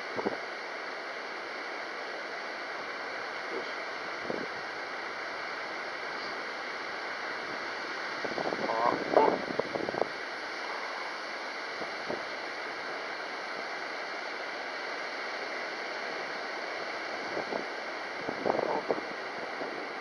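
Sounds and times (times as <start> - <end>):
strong wind hissing: 4.0 - 12.6, 16.8 - 20.0.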